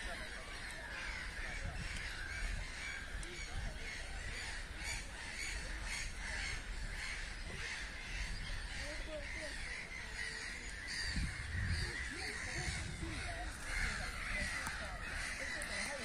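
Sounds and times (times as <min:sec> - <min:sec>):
birds calling: 0:00.0 - 0:16.0.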